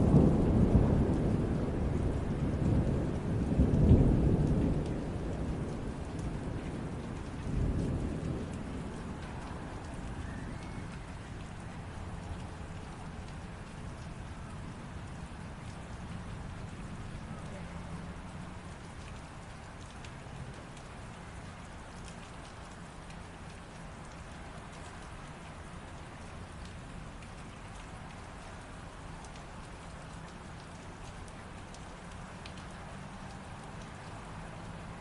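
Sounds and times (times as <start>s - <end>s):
light rain hiss: 0.0s - 35.0s
raindrops ticking on hard surface: 0.0s - 35.0s.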